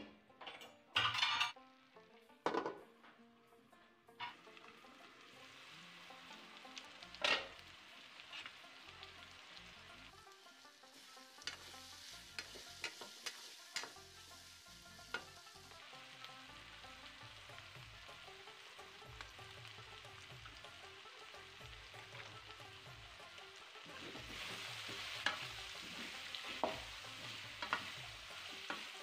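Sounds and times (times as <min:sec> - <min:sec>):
vegetables sizzling in a pan: 0:04.2 - 0:29.0
spatula stirring: 0:11.4 - 0:14.5, 0:23.8 - 0:29.0
spatula clicking on pan: 0:12.4 - 0:14.0, 0:27.6 - 0:28.0.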